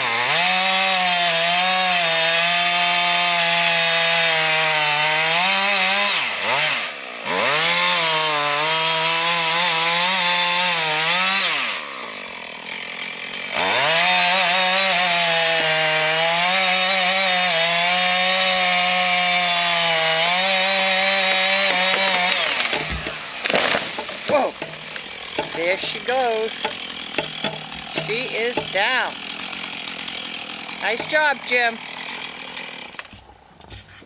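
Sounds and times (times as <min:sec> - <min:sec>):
chainsaw cutting wood: 0:00.0 - 0:34.0.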